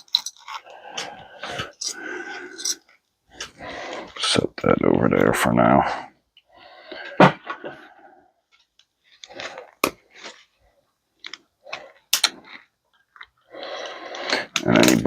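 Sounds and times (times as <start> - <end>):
small parts clicking and knocking: 0.0 - 4.2, 8.5 - 15.0.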